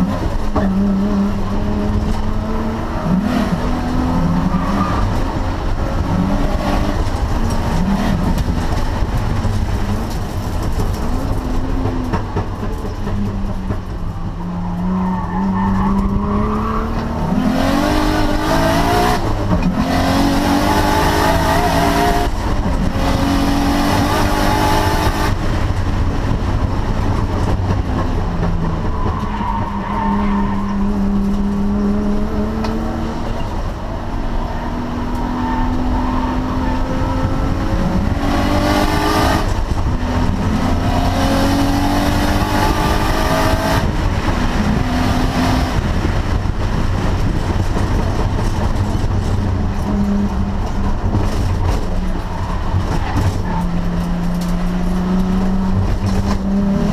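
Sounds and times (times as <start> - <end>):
car engine revving hard: 14.8 - 26.4, 29.1 - 56.9.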